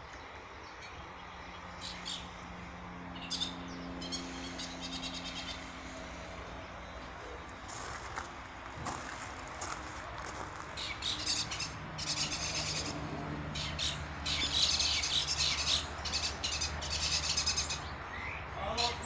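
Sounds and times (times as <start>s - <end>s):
steady low hum: 0.0s - 14.3s
small birds chirping: 0.0s - 19.0s.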